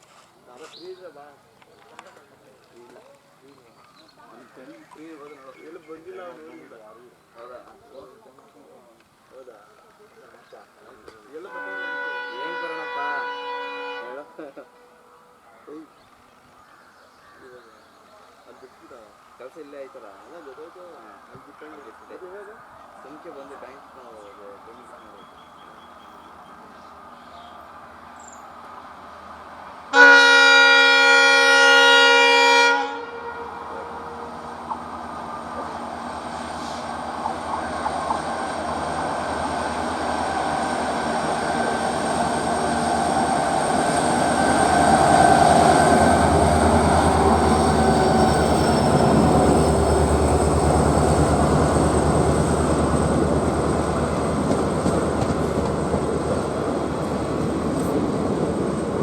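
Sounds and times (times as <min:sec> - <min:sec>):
diesel locomotive horn: 0:11.4 - 0:15.4, 0:29.9 - 0:58.6
locomotive engine passing: 0:21.9 - 0:59.0
wheels clattering over rail joints: 0:34.6 - 0:59.0.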